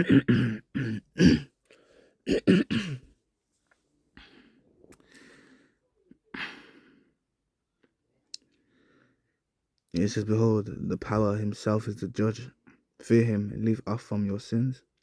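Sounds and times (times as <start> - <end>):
man clearing throat and coughing: 0.0 - 1.6, 2.3 - 3.1, 6.4 - 6.8.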